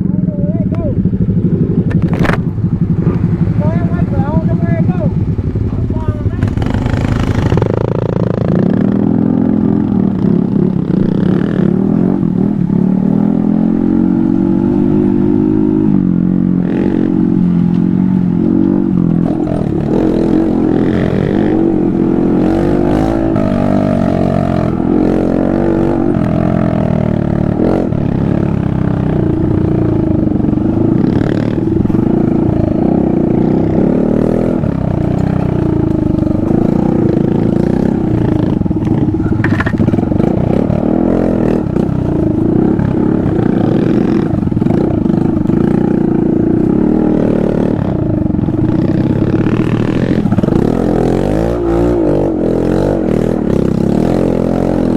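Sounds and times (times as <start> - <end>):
motorbike engine revving: 0.0 - 54.9
clatter: 35.0 - 40.7.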